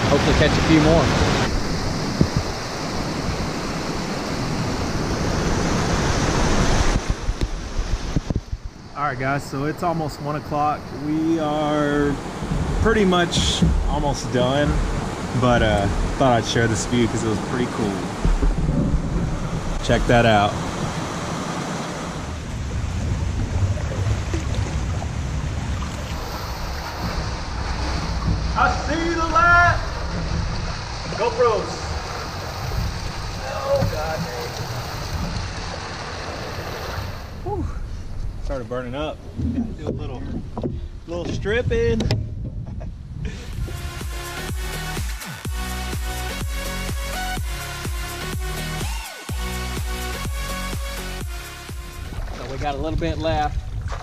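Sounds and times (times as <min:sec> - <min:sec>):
wind buffeting microphone: 0:00.0 - 0:44.0, 0:52.0 - 0:54.0
river water rushing over rocks: 0:10.7 - 0:37.4.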